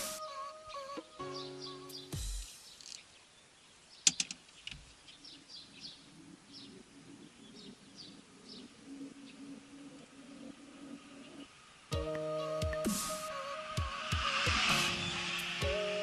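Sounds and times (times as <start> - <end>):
birds chirping: 0.0 - 16.0
sharp clicks: 4.0 - 4.8.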